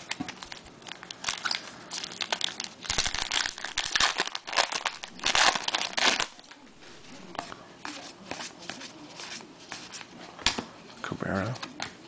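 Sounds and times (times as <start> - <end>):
wrapper crinkling: 0.0 - 8.1.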